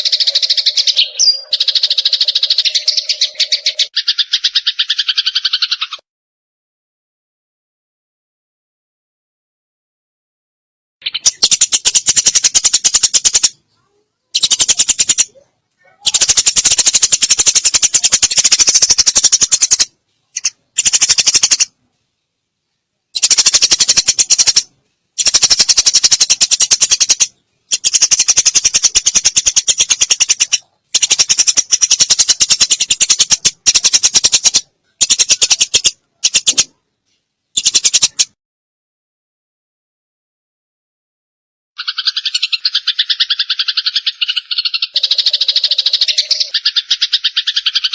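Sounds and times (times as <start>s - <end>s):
sparrow chattering calls: 0.0s - 6.0s, 11.0s - 13.6s, 14.3s - 21.7s, 23.1s - 36.7s, 37.6s - 38.4s, 41.8s - 47.9s.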